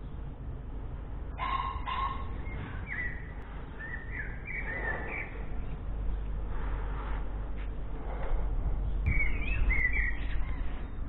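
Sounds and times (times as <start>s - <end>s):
bird harsh bark-like calls: 1.4s - 5.6s, 9.1s - 10.9s
bird warbling chirps: 2.4s - 5.4s, 9.1s - 10.8s.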